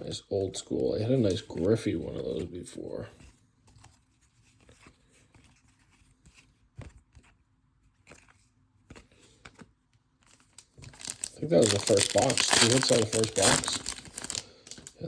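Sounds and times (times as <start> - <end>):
trading cards tapping and scraping: 8.0 - 15.0.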